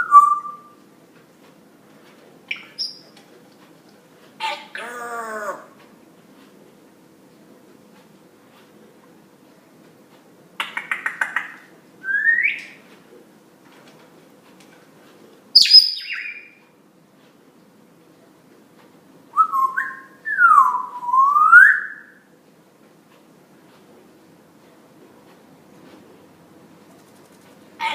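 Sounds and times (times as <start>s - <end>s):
parrot calling: 4.4s - 5.8s, 15.6s - 16.6s.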